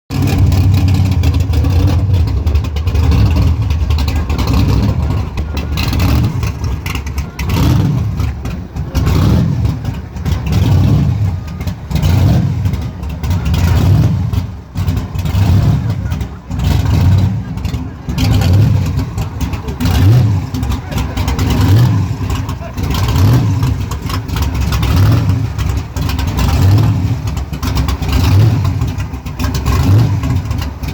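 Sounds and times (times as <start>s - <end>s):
car engine revving: 0.1s - 30.9s.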